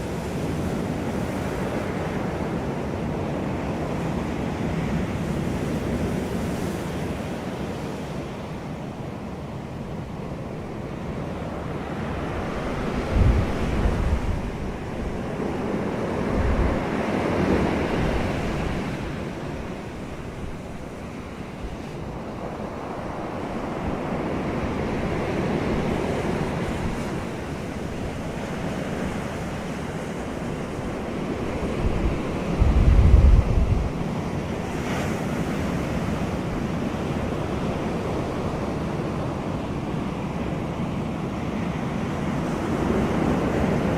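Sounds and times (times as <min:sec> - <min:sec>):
waves rushing: 0:00.0 - 0:43.9
wind blowing: 0:11.0 - 0:36.7
wind buffeting microphone: 0:11.1 - 0:39.3.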